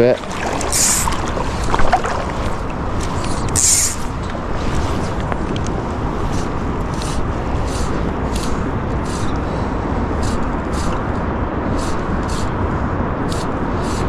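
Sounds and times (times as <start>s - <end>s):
river water rushing: 0.0s - 5.1s
footsteps wading through water: 0.0s - 5.3s.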